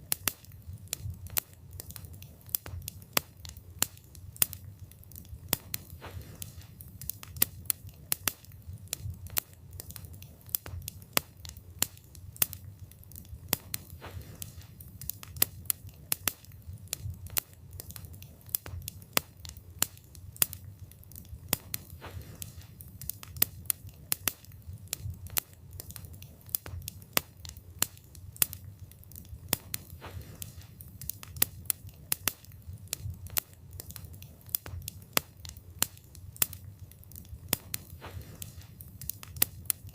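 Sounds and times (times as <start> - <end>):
flames rumbling: 0.0 - 39.9
logs crackling and popping: 0.0 - 39.9.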